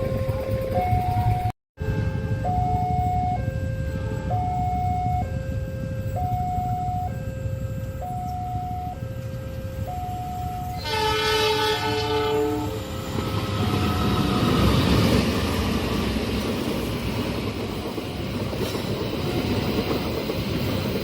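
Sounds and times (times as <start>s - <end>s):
two-tone level-crossing alarm: 0.0s - 15.5s
train rumbling: 0.0s - 21.0s
train horn: 1.8s - 14.6s.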